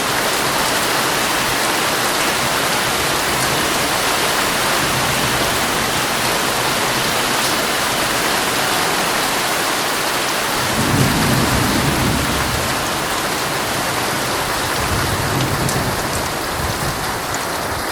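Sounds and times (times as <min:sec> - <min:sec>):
heavy rain on a tent: 0:00.0 - 0:17.9
low roll of thunder: 0:10.6 - 0:17.3.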